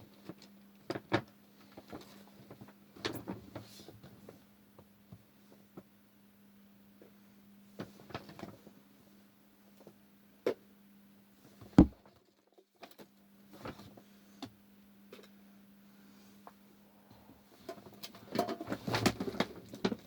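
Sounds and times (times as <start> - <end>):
rustling handling noises: 0.1 - 4.5.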